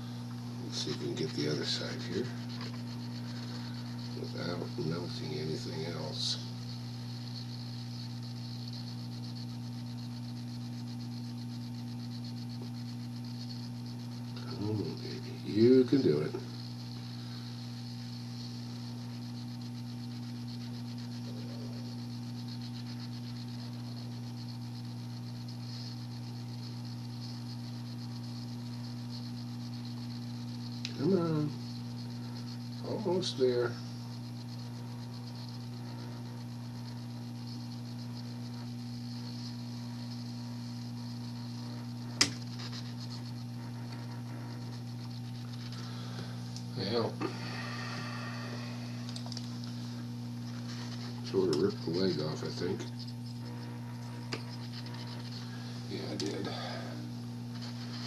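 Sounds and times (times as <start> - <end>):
hot air station hum: 0.0 - 58.0
sharp click: 42.2 - 42.5.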